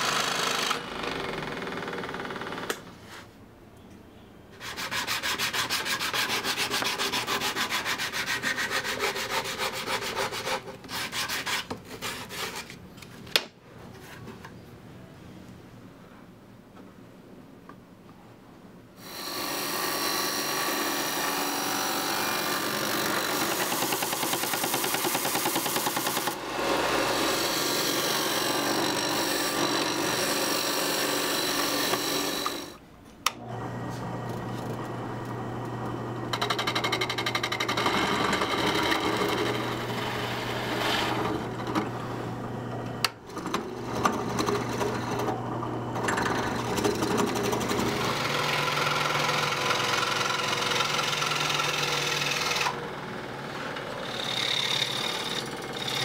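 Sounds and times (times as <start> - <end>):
power tool buzzing: 19.0 - 24.4, 26.0 - 32.8.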